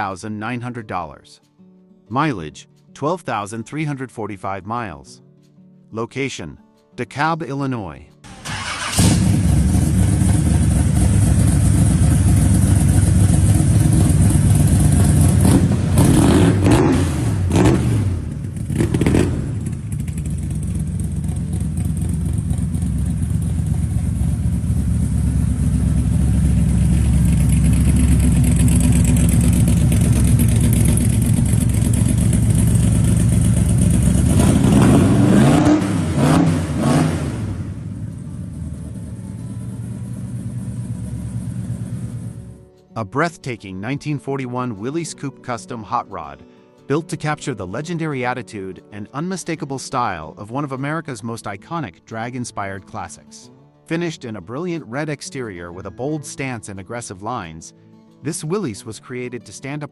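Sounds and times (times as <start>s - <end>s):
engine idling and revving: 8.3s - 42.6s.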